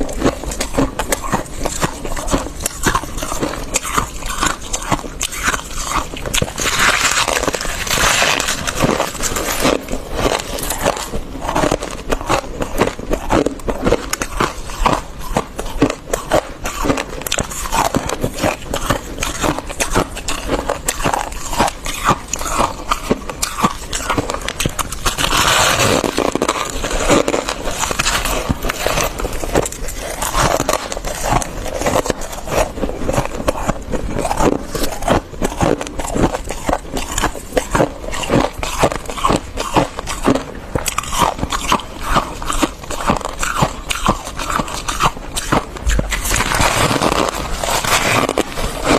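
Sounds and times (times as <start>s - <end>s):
frost crunching as chewed: 0.0s - 48.9s
scraping sounds: 45.4s - 48.9s.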